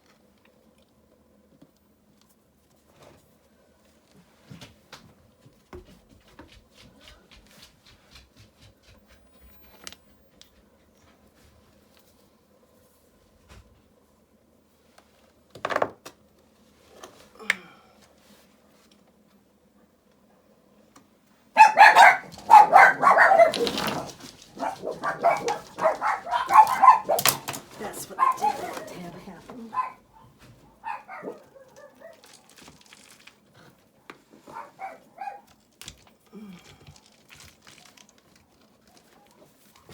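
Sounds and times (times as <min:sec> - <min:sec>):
dog barking loudly: 0:21.6 - 0:32.4, 0:34.5 - 0:35.5
hand tools being handled: 0:22.2 - 0:29.9
rocks scraping and clicking: 0:31.7 - 0:33.8, 0:35.5 - 0:39.4.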